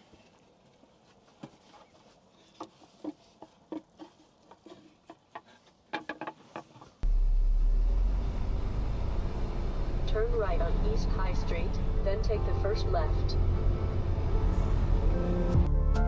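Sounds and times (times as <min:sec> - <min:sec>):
truck road noise: 0:07.0 - 0:15.7.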